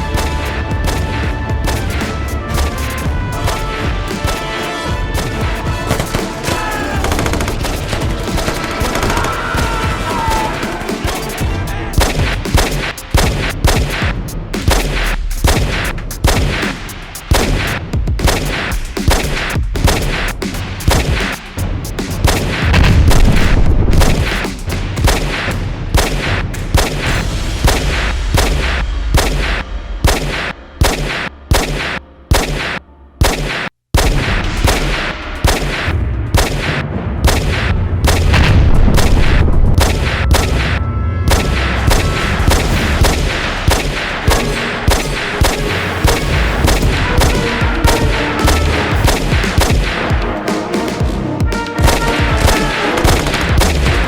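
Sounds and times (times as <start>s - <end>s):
rapid gunfire: 0.0s - 54.0s
heavy low rumble: 21.7s - 33.2s, 34.0s - 50.4s
explosion booms: 22.5s - 25.4s, 34.0s - 50.4s.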